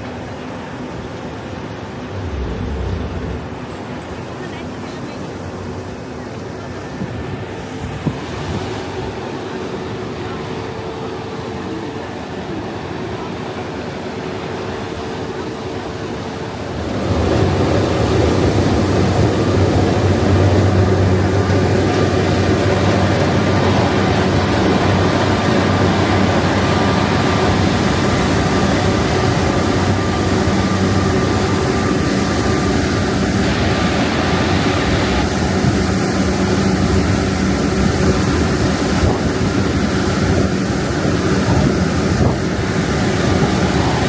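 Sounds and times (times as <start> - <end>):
boat engines humming: 0.0 - 44.0
water rushing: 1.4 - 4.4.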